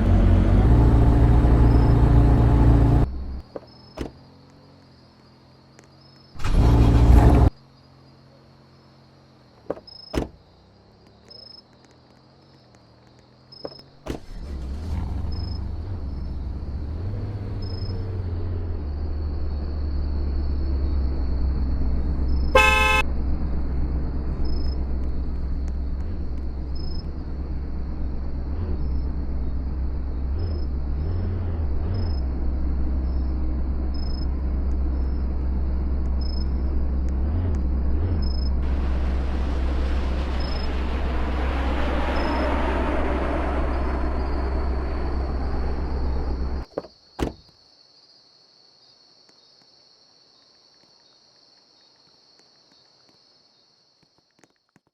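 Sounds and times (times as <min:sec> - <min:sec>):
car engine starting and running: 0:00.0 - 0:04.7, 0:06.4 - 0:07.6, 0:14.0 - 0:47.4
short car horn toot: 0:22.6 - 0:23.0.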